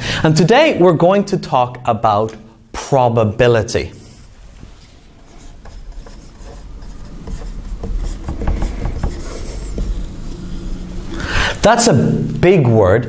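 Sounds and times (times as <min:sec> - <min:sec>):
handwriting on a board: 0:04.4 - 0:11.1.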